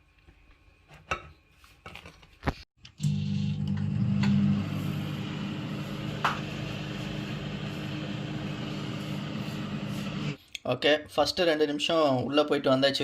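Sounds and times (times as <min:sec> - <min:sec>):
microwave oven humming: 0:02.9 - 0:10.4.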